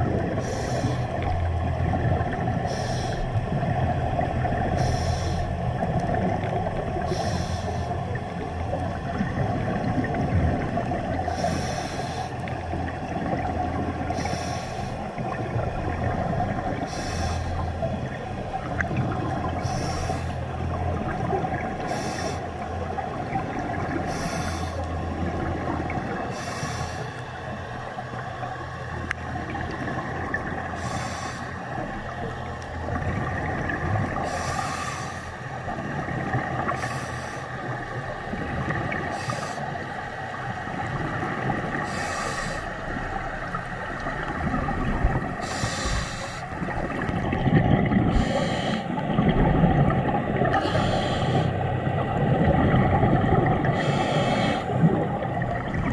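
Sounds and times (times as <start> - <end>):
exhaled bubbles rumbling: 0.0 - 55.9
low underwater drone: 0.0 - 55.9
regulator inhalation hiss: 2.7 - 3.2, 4.8 - 5.5, 7.1 - 8.0, 14.2 - 15.0, 16.9 - 17.7, 41.9 - 42.7, 45.4 - 46.5, 48.2 - 48.8, 50.6 - 51.5, 53.8 - 54.7.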